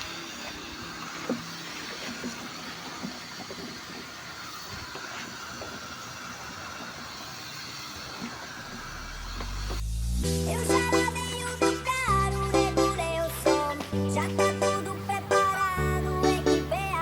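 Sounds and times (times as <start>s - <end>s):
water spraying on truck body: 0.0s - 9.9s.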